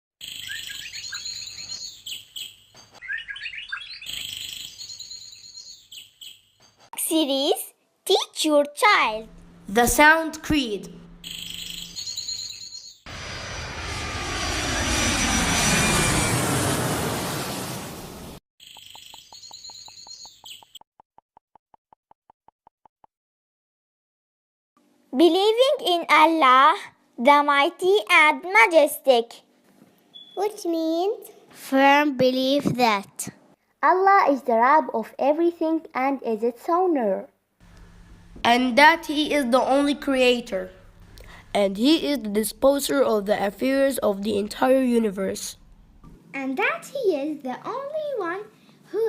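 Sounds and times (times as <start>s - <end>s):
songbirds chirping: 0.3s - 6.9s, 18.6s - 20.8s
airplane noise: 9.2s - 12.0s, 13.1s - 18.4s, 37.6s - 46.2s.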